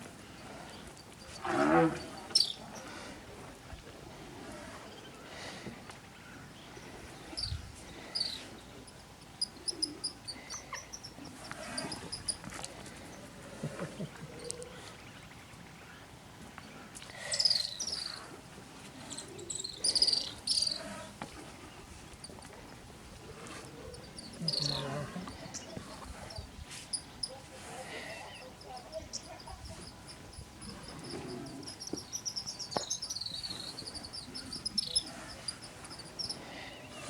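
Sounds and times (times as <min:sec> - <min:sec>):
high-pitched chirping calls: 0:02.3 - 0:02.6, 0:19.1 - 0:20.8, 0:23.9 - 0:24.9, 0:28.2 - 0:36.4.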